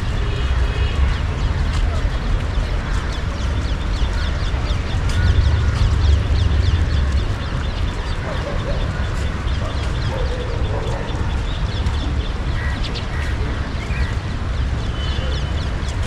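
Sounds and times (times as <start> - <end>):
steady low rumble: 0.0 - 15.0
birds chirping: 0.0 - 16.0.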